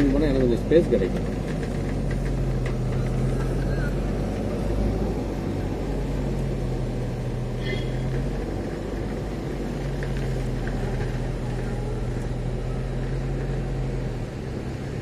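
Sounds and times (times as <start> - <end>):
car engine humming: 0.0 - 15.0.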